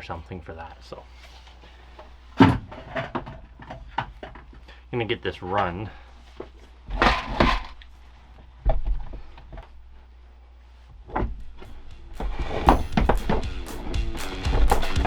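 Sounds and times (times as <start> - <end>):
knocks and bumps: 2.0 - 4.6, 11.0 - 15.0.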